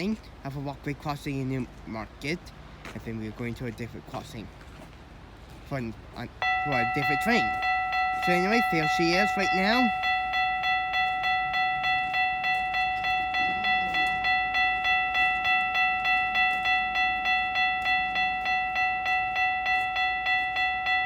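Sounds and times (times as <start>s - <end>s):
railway crossing bell dinging: 6.4s - 21.0s.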